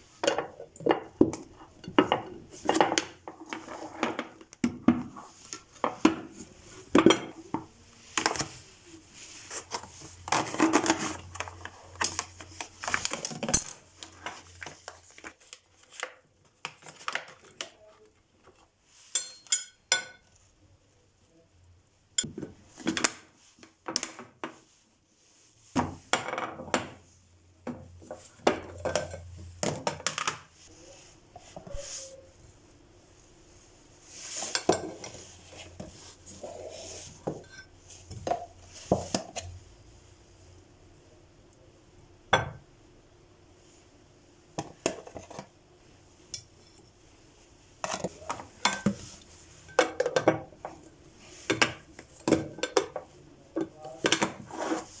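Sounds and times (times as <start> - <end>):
kitchenware clinking and clattering: 0.2 - 5.2, 5.8 - 8.6, 19.0 - 20.3, 28.0 - 30.5, 34.4 - 39.5, 47.8 - 54.9.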